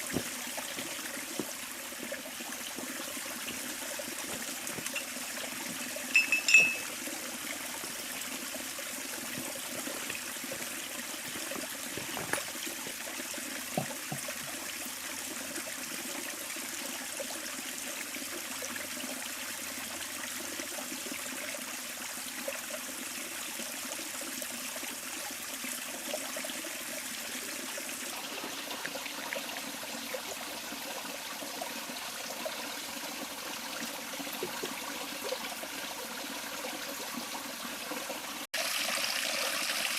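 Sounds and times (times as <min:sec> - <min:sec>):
river flowing: 0:00.0 - 0:14.3
high-pitched ringing tone: 0:05.7 - 0:06.9.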